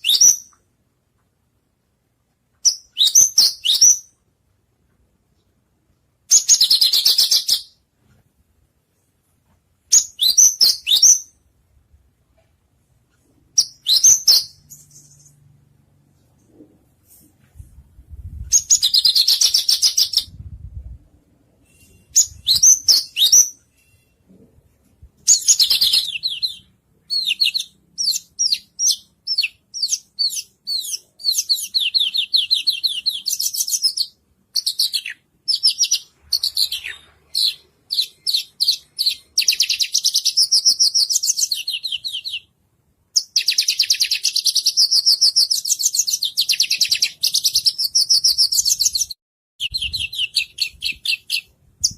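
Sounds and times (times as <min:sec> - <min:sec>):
songbird trills and whistles: 0:02.7 - 0:04.1, 0:21.6 - 0:24.0, 0:43.2 - 0:51.9.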